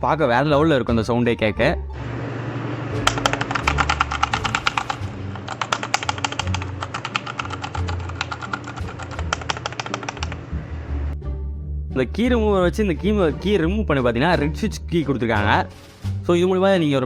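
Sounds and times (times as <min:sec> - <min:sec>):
mechanical keyboard typing: 0:03.0 - 0:10.4.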